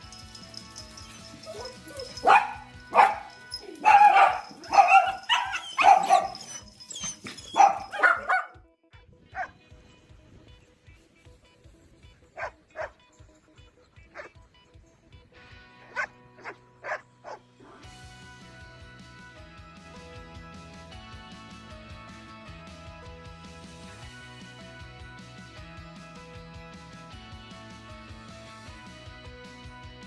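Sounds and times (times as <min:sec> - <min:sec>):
background music with beat: 0:00.0 - 0:08.6
puppy barking: 0:01.1 - 0:08.6, 0:09.4 - 0:09.6, 0:12.4 - 0:13.0, 0:14.1 - 0:14.4, 0:15.8 - 0:17.4.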